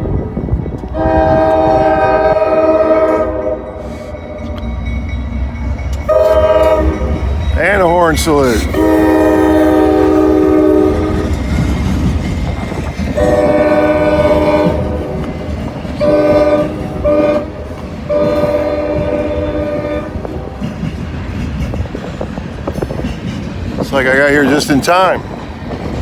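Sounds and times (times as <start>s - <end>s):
freight train rumbling past: 0.0s - 26.0s
locomotive air horn blasts: 0.8s - 4.3s, 6.1s - 7.3s, 8.7s - 11.3s, 13.2s - 15.4s, 16.0s - 20.6s.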